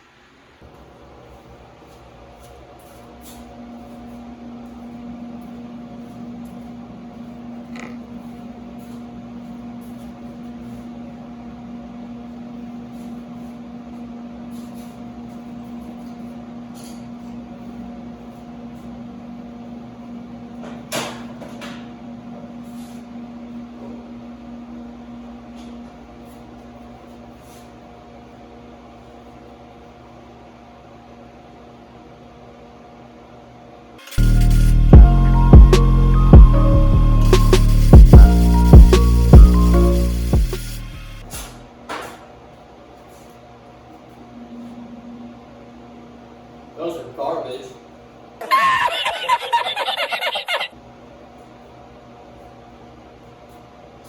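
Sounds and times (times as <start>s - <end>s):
electrical hum: 34.0s - 41.8s.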